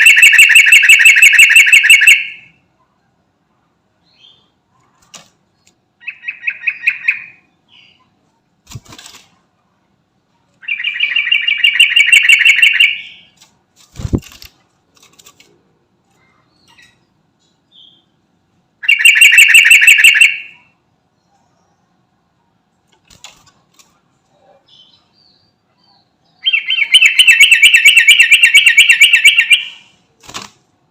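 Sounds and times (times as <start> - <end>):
bird chattering calls: 0.0 - 2.4, 10.6 - 13.4, 18.8 - 20.7, 26.4 - 29.9.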